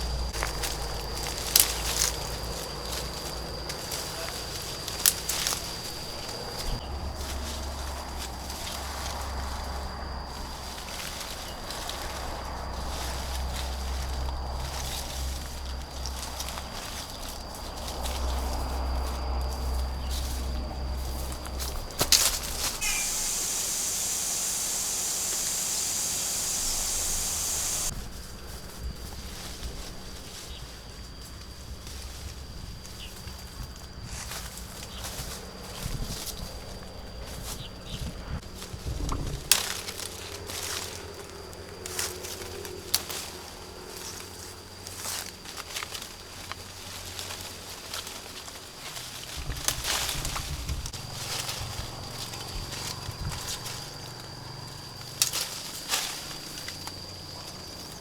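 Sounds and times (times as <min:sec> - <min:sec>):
steady high hiss: 0:21.9 - 0:27.9.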